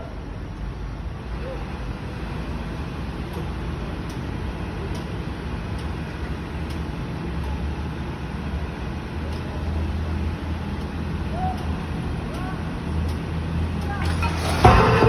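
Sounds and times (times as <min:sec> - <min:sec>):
faint light ticks: 0:03.3 - 0:04.3, 0:04.9 - 0:05.1, 0:05.8 - 0:06.0, 0:06.6 - 0:07.8, 0:09.2 - 0:09.7, 0:10.7 - 0:14.0.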